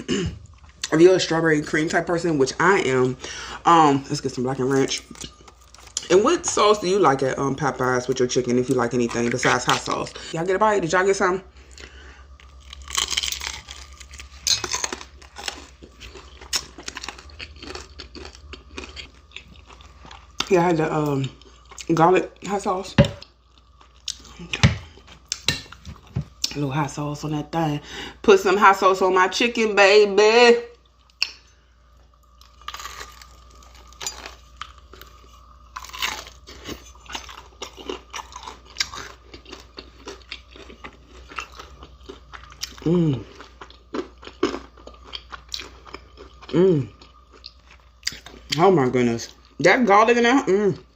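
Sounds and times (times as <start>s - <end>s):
crunching and chewing fried chicken: 2.3s - 10.3s, 11.5s - 26.6s, 30.8s - 49.6s.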